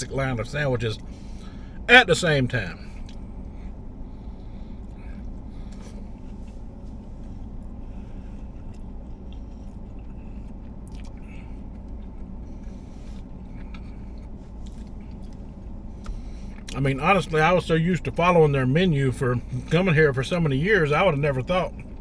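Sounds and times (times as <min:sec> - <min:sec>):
steady low hum: 0:00.0 - 0:22.0
person chewing sandwich: 0:04.6 - 0:16.8.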